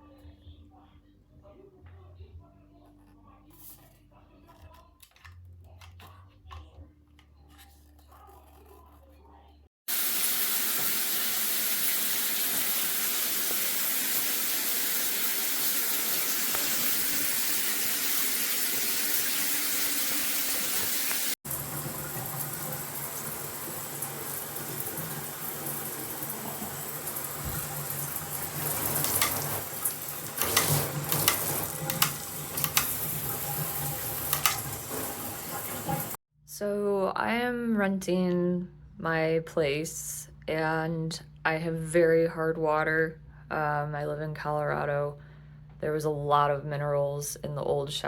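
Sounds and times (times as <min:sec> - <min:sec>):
shower head spraying water: 0:09.9 - 0:36.2
knocks and clicks: 0:28.7 - 0:29.7, 0:30.3 - 0:35.1.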